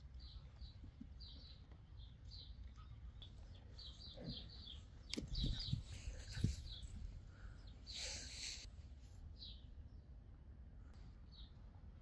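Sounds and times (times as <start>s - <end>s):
small birds chirping: 0.0s - 8.7s, 9.3s - 10.3s, 10.9s - 12.0s
dull thumps: 5.2s - 6.9s.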